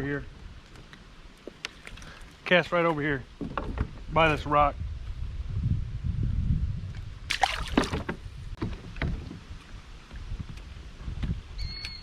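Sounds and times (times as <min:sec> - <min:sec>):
kayak splashing: 0:07.3 - 0:08.4.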